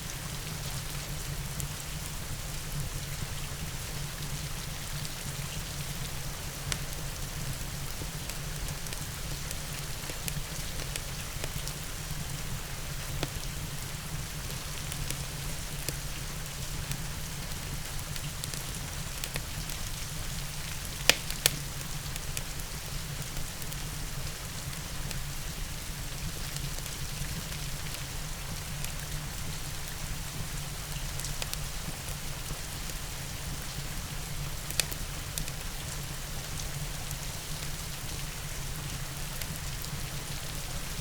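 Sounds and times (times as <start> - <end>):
steady rain: 0.0 - 41.0
fireplace fire crackling: 5.3 - 25.2, 28.8 - 41.0.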